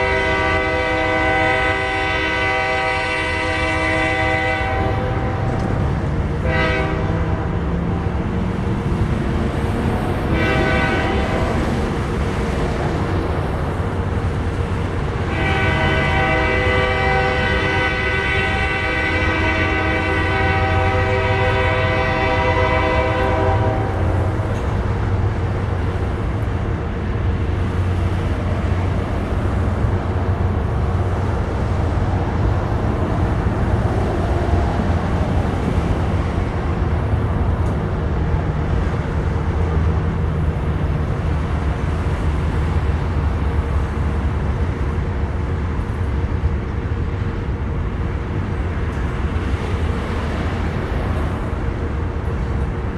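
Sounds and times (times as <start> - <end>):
locomotive air horn blast: 0.0 - 5.7, 6.4 - 8.1, 10.2 - 11.7, 15.1 - 24.4
freight train rumbling: 0.0 - 52.9.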